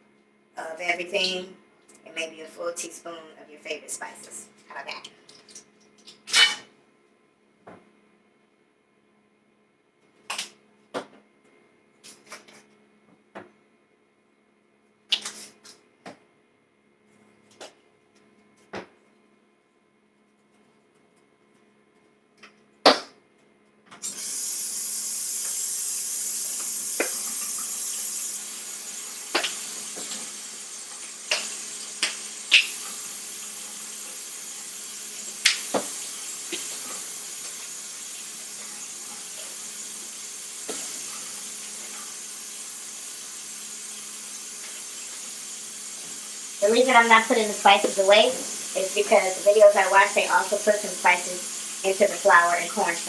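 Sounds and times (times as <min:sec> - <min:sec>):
steady hiss: 0:24.0 - 0:53.0.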